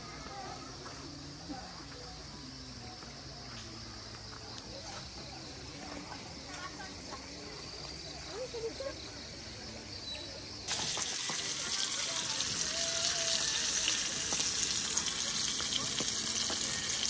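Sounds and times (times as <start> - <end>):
food frying in a pan: 10.7 - 17.0.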